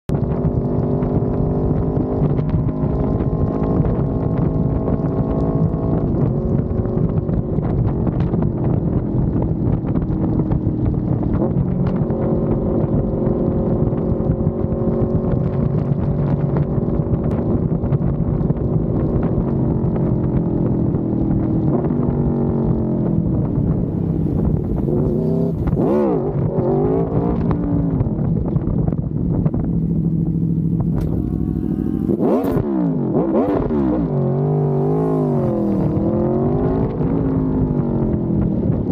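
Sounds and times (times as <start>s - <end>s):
wind rush: 0.1s - 38.9s
motorcycle engine revving: 21.4s - 28.4s, 29.2s - 38.8s.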